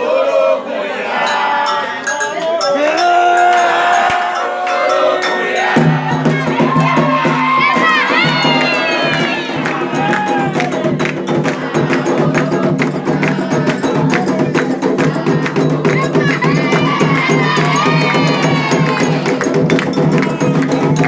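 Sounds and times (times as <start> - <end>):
voices chanting together: 0.0 - 21.0
high wavering cries: 1.2 - 10.8, 15.9 - 19.5
drums and percussion: 1.2 - 21.0.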